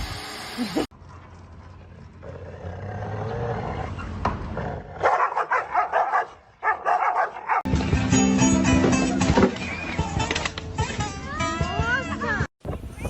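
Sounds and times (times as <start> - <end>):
dog barking: 5.0 - 7.7
guitar music: 7.7 - 12.4.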